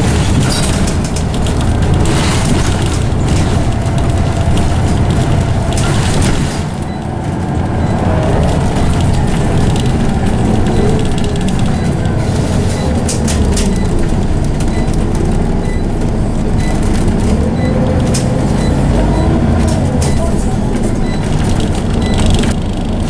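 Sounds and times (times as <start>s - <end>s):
bus diesel engine: 0.0s - 23.0s
gearbox whine: 0.0s - 23.0s
sharp clicks and rattles: 0.0s - 23.0s.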